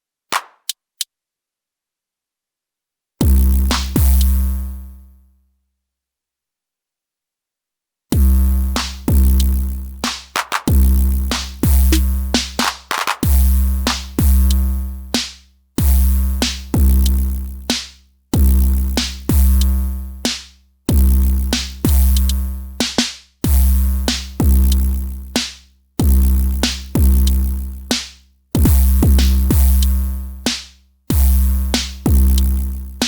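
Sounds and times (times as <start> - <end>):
looped drum machine pattern: 8.8 - 14.5, 21.0 - 29.9.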